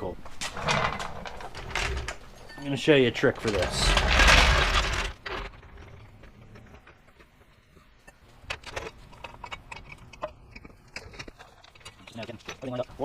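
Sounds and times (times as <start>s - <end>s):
tools and parts clicking: 3.4s - 13.0s.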